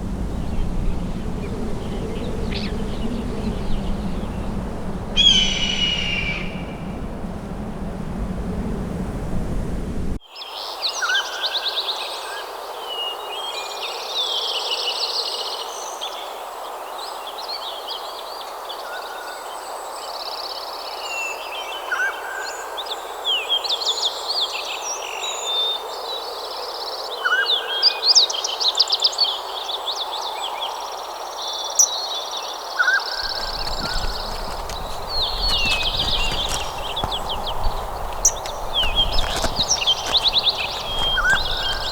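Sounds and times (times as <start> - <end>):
songbirds singing and chirping: 0.0 - 7.0, 33.2 - 41.9
low rumbly background: 0.0 - 10.2, 33.2 - 41.9
steady rushing background: 33.2 - 41.9.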